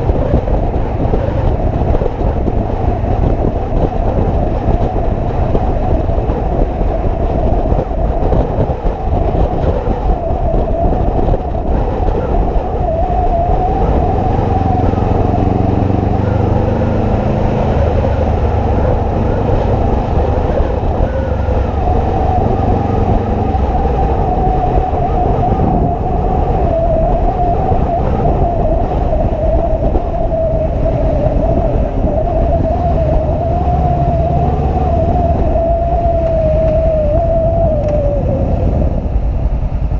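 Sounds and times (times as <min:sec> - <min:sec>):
motorcycle engine drone: 0:00.0 - 0:39.9
wavering tone: 0:09.0 - 0:39.1.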